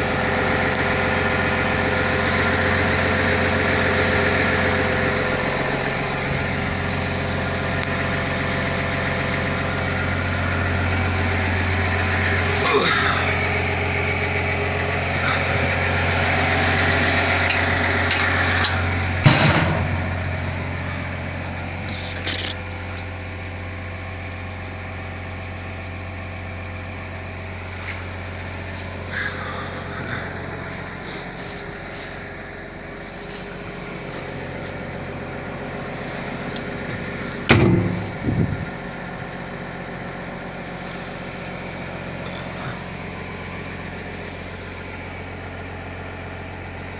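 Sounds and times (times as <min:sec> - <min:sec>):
excavator diesel engine running: 0:00.0 - 0:46.9
sharp metallic knocks: 0:37.5 - 0:38.2.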